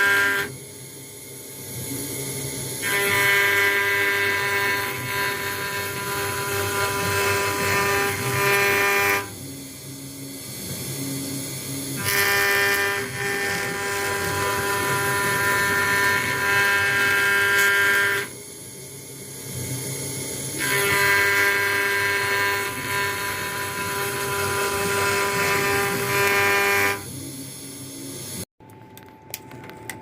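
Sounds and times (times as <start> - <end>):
router spindle whining: 1.8 - 18.4, 20.1 - 27.4.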